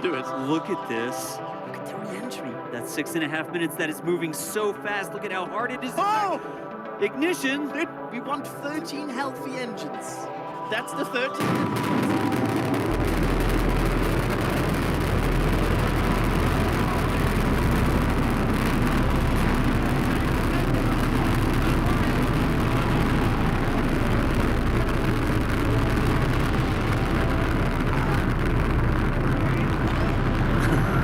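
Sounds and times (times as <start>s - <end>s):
rocket engines roaring: 10.7s - 31.0s.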